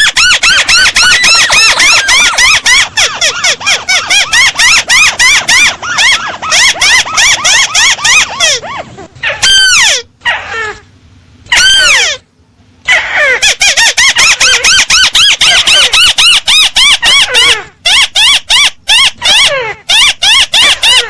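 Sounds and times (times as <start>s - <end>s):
recorded bird call: 0.0s - 10.8s, 11.5s - 21.0s.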